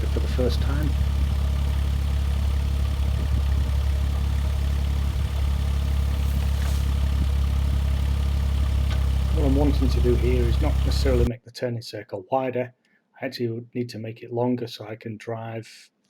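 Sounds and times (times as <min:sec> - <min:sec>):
diesel engine running: 0:00.0 - 0:11.3.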